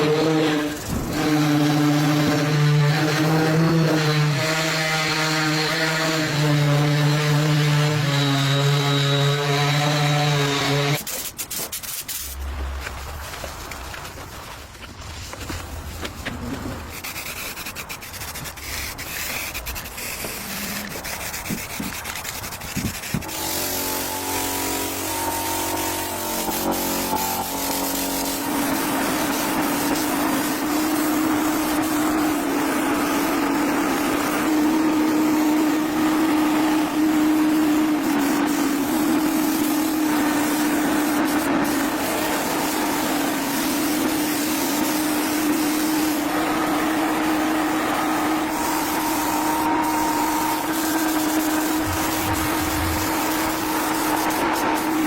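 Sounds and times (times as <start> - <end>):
small motor tool humming: 22.6 - 55.0.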